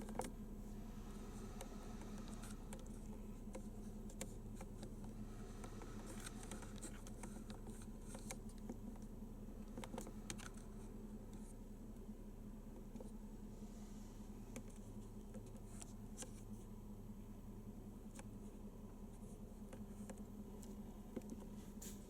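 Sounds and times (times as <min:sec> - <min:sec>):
low steady hum: 0:00.0 - 0:22.0
light tapping and handling: 0:01.5 - 0:11.6, 0:18.1 - 0:22.0.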